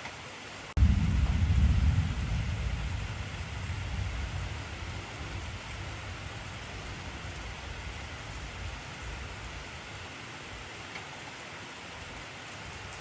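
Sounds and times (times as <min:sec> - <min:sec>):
heavy rain: 0:00.0 - 0:13.0
low thunder rumble: 0:00.8 - 0:10.1.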